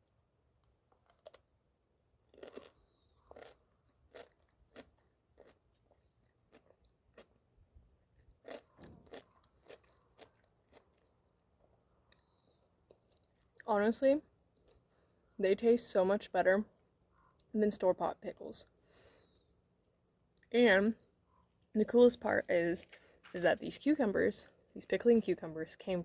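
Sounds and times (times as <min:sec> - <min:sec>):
person crunching a pickle: 0:00.6 - 0:01.5, 0:02.2 - 0:13.7.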